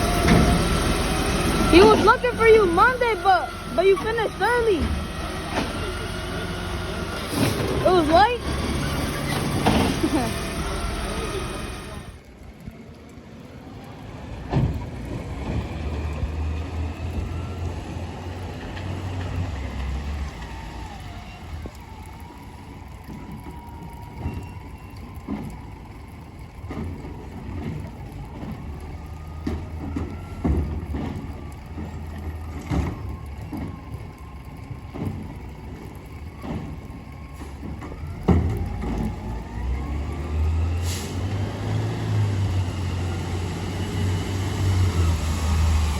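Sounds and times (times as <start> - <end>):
garbage truck engine revving: 0.0 - 12.2, 26.1 - 45.9.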